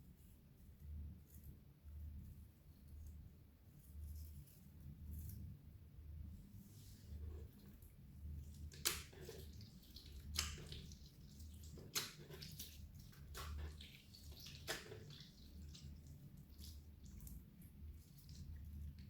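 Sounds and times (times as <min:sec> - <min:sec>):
slime squishing: 0:06.7 - 0:19.0.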